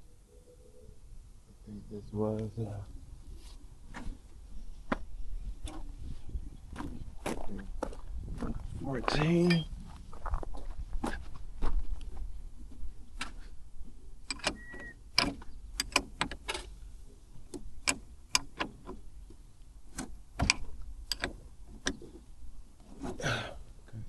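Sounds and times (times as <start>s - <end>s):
hand tools clicking and knocking: 14.3s - 16.6s.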